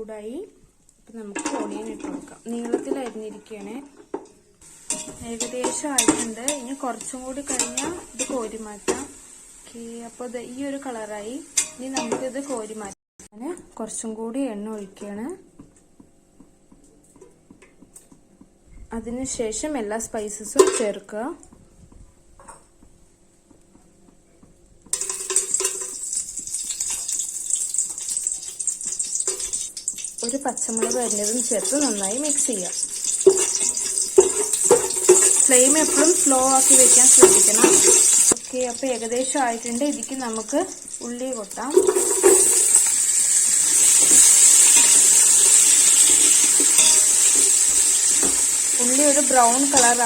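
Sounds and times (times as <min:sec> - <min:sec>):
hot oil sizzling in a pot: 0:01.4 - 0:13.0, 0:24.9 - 0:50.0.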